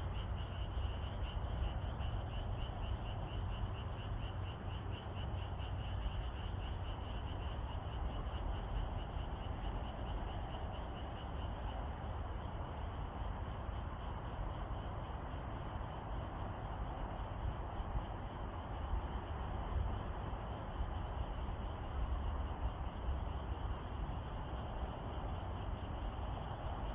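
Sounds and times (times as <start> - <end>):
frog chorus trilling: 0.0 - 13.1.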